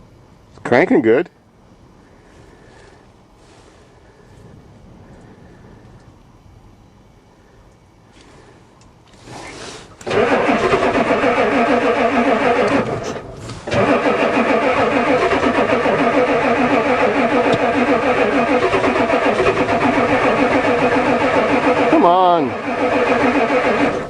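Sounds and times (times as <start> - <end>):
diesel engine cranking: 8.2 - 24.0.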